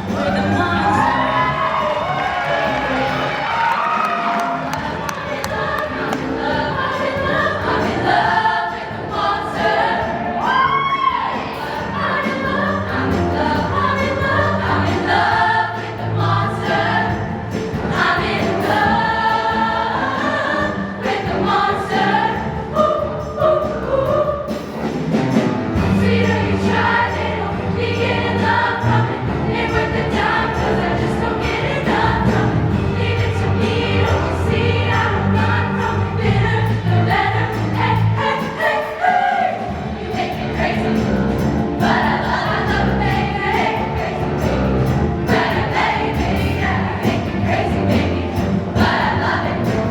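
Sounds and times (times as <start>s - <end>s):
choir singing in harmony: 0.0s - 49.9s
musical accompaniment: 0.0s - 49.9s
low bass notes: 25.1s - 38.2s.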